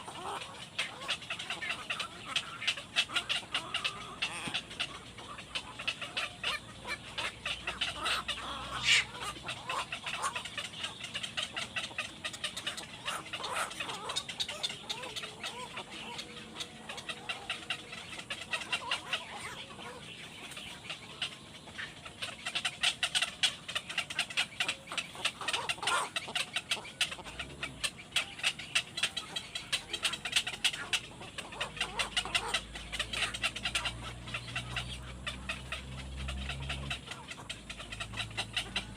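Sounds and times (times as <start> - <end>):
young birds cheeping: 0.0 - 38.9.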